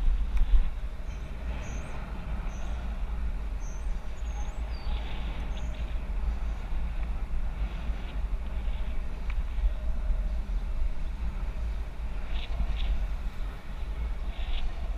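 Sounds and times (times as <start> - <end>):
wind buffeting microphone: 0.0 - 14.9
small birds chirping: 1.0 - 7.0.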